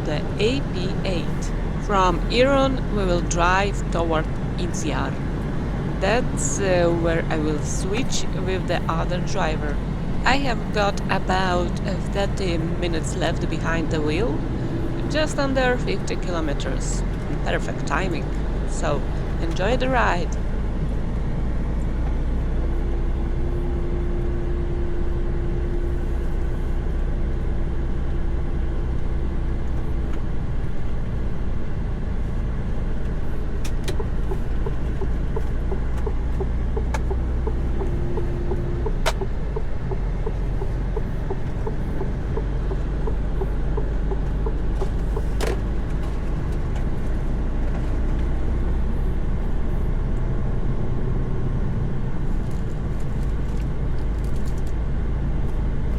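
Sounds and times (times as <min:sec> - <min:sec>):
truck engine and road drone: 0:00.0 - 0:55.9
humming tone: 0:32.0 - 0:53.2
sharp clicks: 0:33.6 - 0:46.9.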